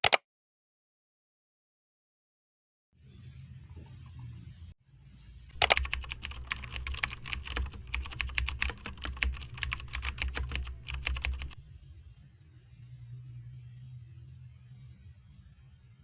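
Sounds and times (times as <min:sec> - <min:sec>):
fast typing on keyboard: 0:05.6 - 0:11.6.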